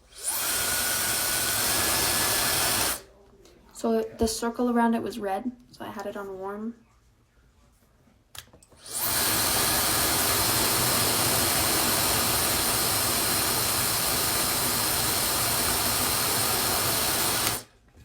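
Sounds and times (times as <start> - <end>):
hair dryer blowing with high whine: 0.1 - 3.0, 8.8 - 17.7.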